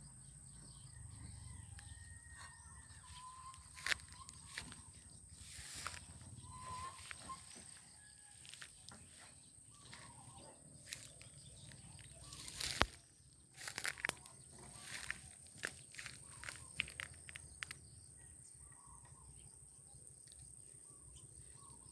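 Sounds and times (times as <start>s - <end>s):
short chirps: 5.4s - 7.7s.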